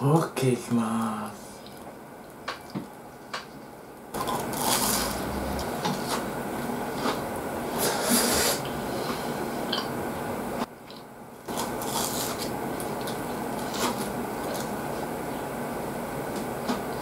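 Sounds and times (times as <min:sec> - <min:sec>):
crunchy chewing of fried food: 0:01.5 - 0:07.9, 0:10.8 - 0:15.4.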